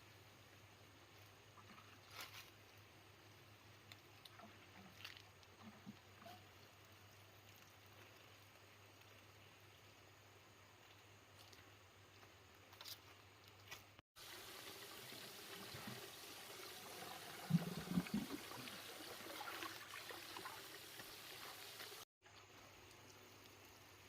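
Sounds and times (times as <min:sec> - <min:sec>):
water trickling and pouring: 0:14.2 - 0:22.0.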